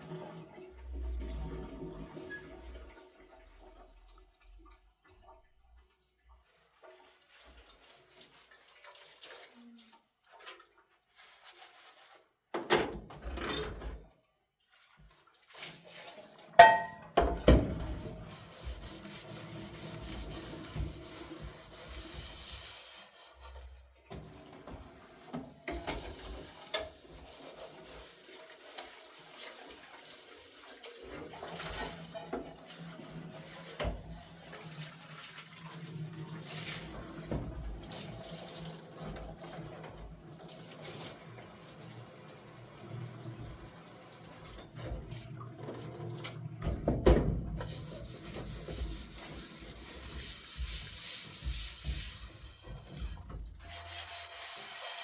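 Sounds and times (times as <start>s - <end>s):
water running and splashing: 47.7s - 52.8s.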